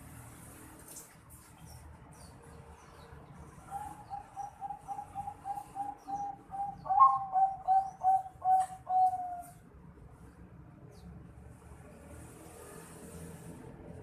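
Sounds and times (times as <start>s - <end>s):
dove cooing: 3.7s - 9.6s.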